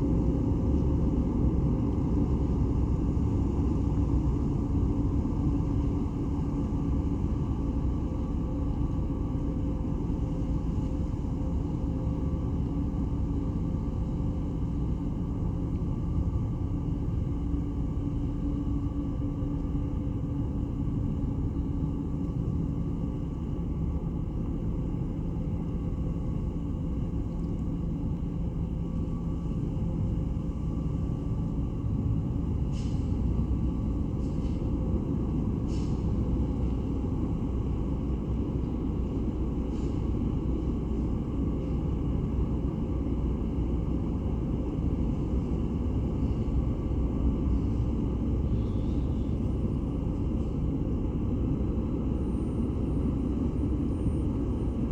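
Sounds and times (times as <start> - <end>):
faint hum: 45.2 - 54.9.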